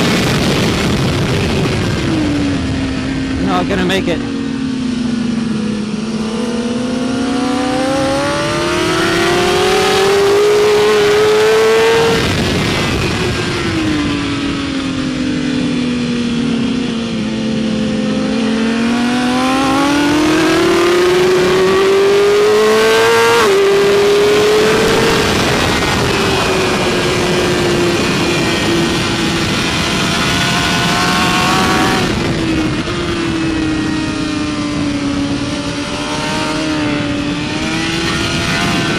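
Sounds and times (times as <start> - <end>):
motorcycle engine at racing speed: 0.0 - 38.9
wind rushing past: 0.0 - 38.9.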